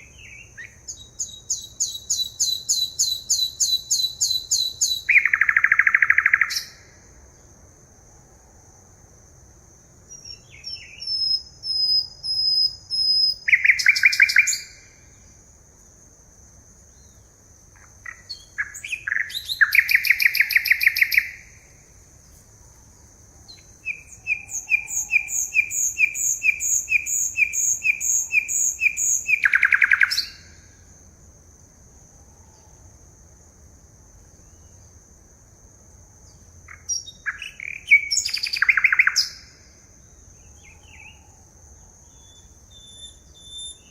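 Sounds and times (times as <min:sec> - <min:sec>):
songbird singing trills: 0:00.0 - 0:07.4, 0:10.0 - 0:15.5, 0:16.8 - 0:22.4, 0:23.3 - 0:30.8, 0:36.2 - 0:43.9.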